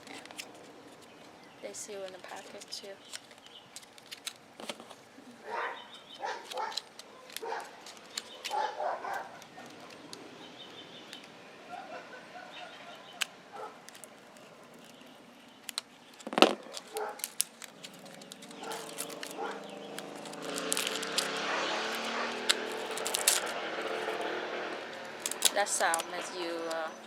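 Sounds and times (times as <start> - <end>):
plastic packaging clicking: 0.0 - 5.1, 5.8 - 11.4, 13.0 - 24.2, 24.9 - 27.0
dog barking: 5.4 - 7.8, 8.4 - 10.0, 11.7 - 13.8, 16.6 - 17.2, 18.6 - 19.7, 21.3 - 22.5.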